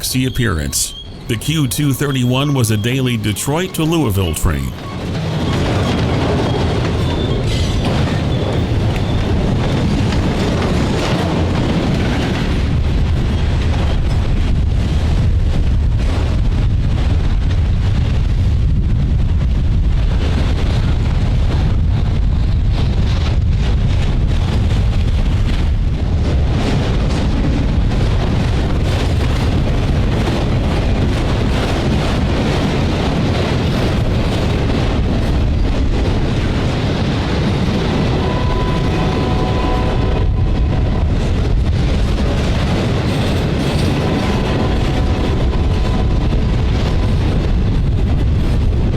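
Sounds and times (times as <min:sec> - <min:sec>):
wind noise on microphone: 0:04.9 - 0:48.9
freight train rumbling past: 0:20.0 - 0:48.9.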